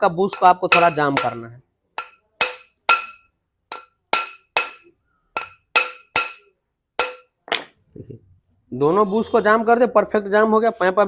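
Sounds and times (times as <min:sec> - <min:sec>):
hammer striking steel tube: 0:00.3 - 0:07.3.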